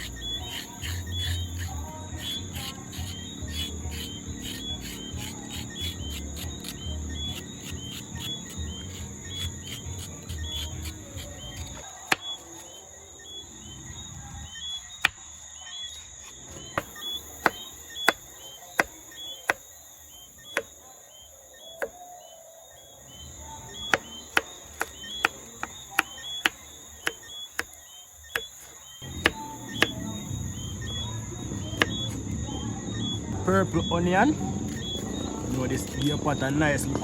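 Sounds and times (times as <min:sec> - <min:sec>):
knife chopping vegetables: 0:00.0 - 0:12.8, 0:15.9 - 0:19.6, 0:28.4 - 0:30.1
crickets chirring: 0:00.0 - 0:37.0.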